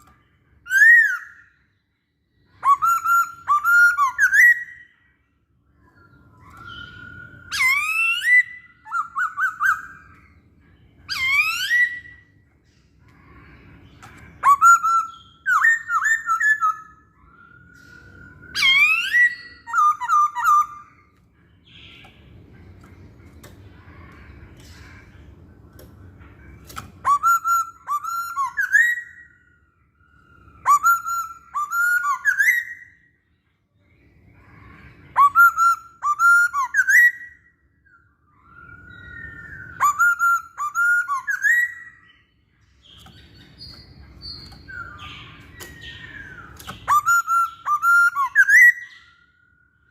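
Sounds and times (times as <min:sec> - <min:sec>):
bird singing whistled phrases: 0:00.0 - 0:01.7, 0:02.4 - 0:05.1, 0:05.9 - 0:10.3, 0:11.0 - 0:12.4, 0:14.3 - 0:22.1, 0:27.0 - 0:33.2, 0:34.6 - 0:49.9.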